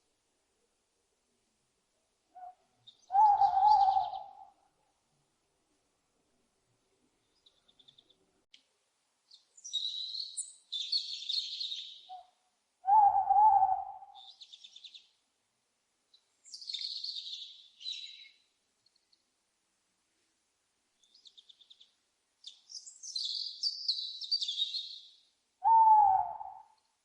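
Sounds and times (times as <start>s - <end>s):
owl hooting: 2.3s - 4.6s, 10.7s - 14.5s, 25.6s - 26.8s
owl chattering: 2.4s - 4.5s
owl screeching: 3.1s - 4.3s, 25.6s - 26.7s.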